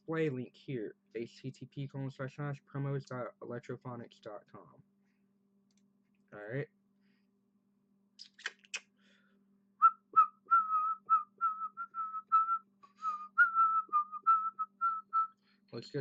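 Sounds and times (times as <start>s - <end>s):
person whistling: 9.8s - 15.4s.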